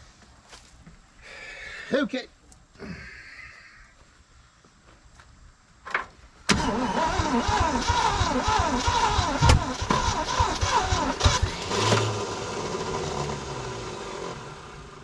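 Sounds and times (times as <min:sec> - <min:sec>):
engine cranking on starter: 0:06.5 - 0:14.8
engine firing pops: 0:09.4 - 0:10.1.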